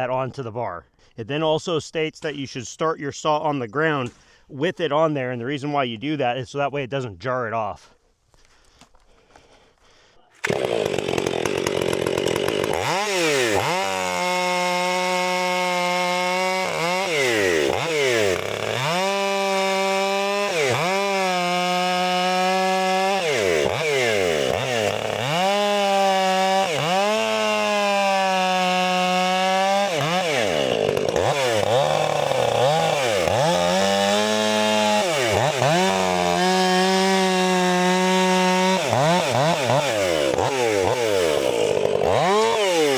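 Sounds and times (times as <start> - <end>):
chainsaw cutting wood: 10.4 - 42.9.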